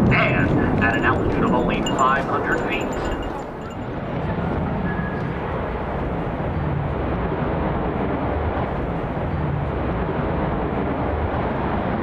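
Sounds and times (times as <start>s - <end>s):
jet fighter rushing rumble: 0.0s - 3.7s.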